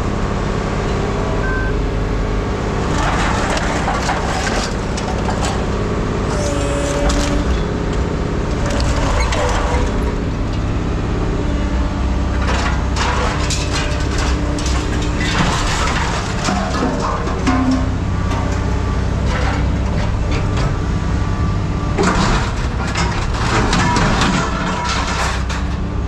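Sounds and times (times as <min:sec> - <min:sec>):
heavy machine engine running: 0:00.0 - 0:26.0
scrap metal cracking and crunching: 0:02.8 - 0:10.7, 0:12.3 - 0:20.9, 0:22.0 - 0:26.0
short whining tones: 0:06.3 - 0:07.7.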